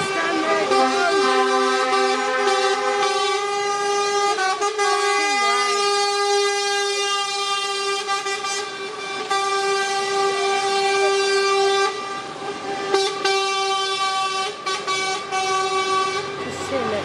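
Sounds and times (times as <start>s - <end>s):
lorry air horn blasts: 0.0s - 16.5s.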